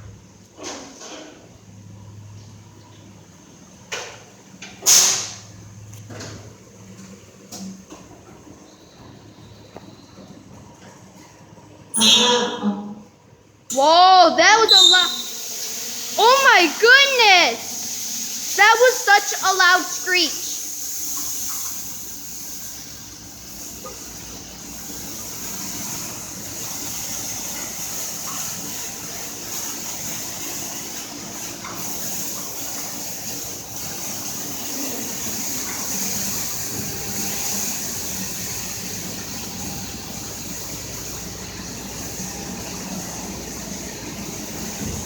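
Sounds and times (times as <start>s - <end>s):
machinery and pumps humming: 0.0s - 45.0s
water spray hissing: 13.8s - 44.8s.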